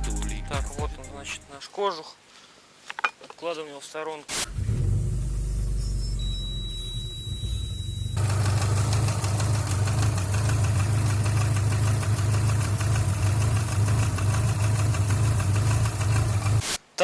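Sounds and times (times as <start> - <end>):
car engine idling: 7.7 - 16.6.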